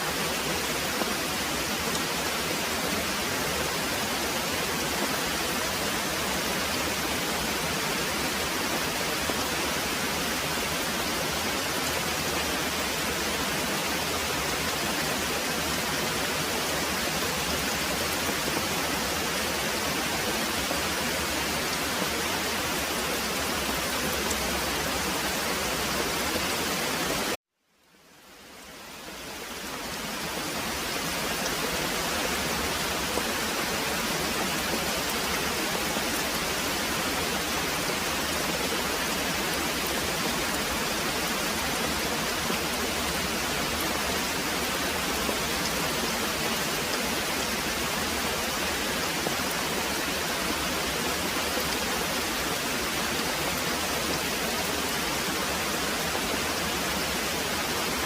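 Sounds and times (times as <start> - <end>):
heavy rain pouring: 0.0 - 27.4, 28.2 - 58.0.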